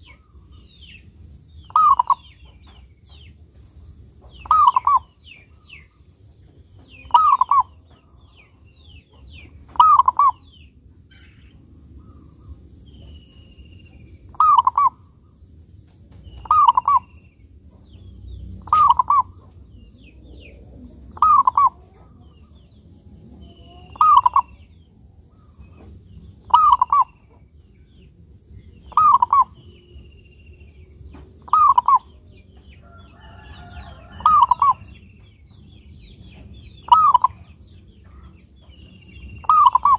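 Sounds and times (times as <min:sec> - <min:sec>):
low steady hum: 0:00.0 - 0:39.9
high bird chirps: 0:01.6 - 0:03.3, 0:04.3 - 0:05.9, 0:06.7 - 0:11.6, 0:12.9 - 0:15.0, 0:16.2 - 0:22.8, 0:23.4 - 0:39.9
dove cooing: 0:01.7 - 0:02.3, 0:04.4 - 0:05.1, 0:07.0 - 0:07.9, 0:09.7 - 0:10.5, 0:14.3 - 0:15.0, 0:16.4 - 0:17.2, 0:18.6 - 0:22.6, 0:23.3 - 0:24.7, 0:26.4 - 0:27.4, 0:28.9 - 0:29.7, 0:31.4 - 0:32.4, 0:33.2 - 0:35.0, 0:36.8 - 0:38.4, 0:39.4 - 0:39.9.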